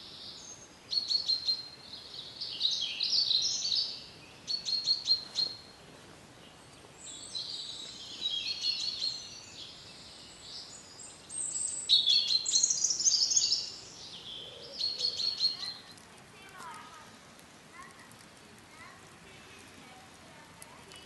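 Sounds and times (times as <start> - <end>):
songbirds singing trills: 0.0 - 16.1.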